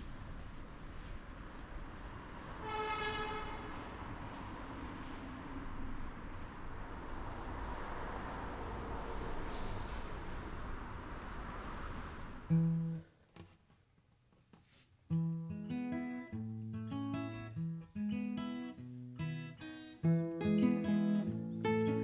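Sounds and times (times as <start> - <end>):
acoustic guitar strumming: 15.1 - 22.0.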